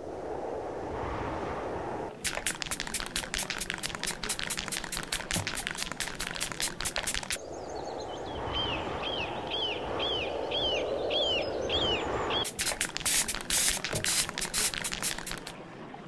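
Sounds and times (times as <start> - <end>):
outdoor ambience: 0.0 - 16.0
aerosol spray can hissing: 2.2 - 7.4, 12.4 - 15.5
bird chirping: 7.0 - 12.6.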